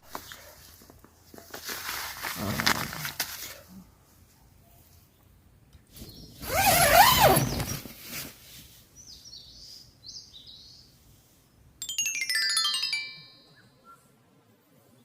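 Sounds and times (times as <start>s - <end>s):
small birds chirping: 4.6s - 8.0s, 8.8s - 11.8s
ringing chime-like bird notes: 11.8s - 14.1s.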